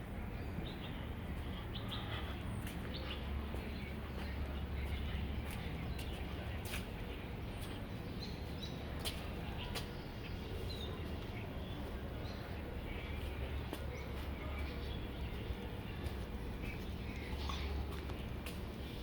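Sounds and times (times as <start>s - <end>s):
low outdoor rumble: 0.0s - 19.0s
small birds chirping: 0.2s - 19.0s.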